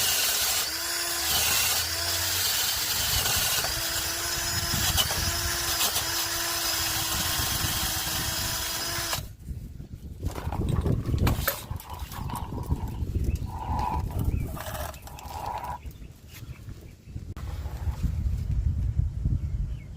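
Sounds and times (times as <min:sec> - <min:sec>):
electric power tool running: 0:00.0 - 0:09.3.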